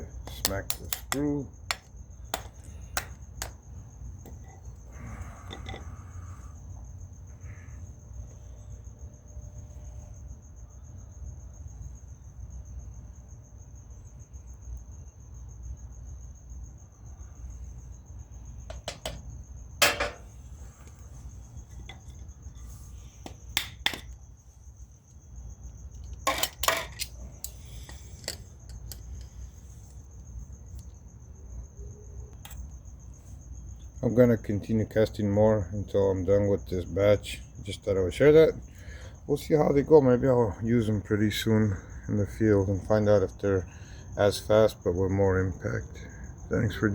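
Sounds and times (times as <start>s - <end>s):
mallet knocking metal mold: 19.8s - 20.2s.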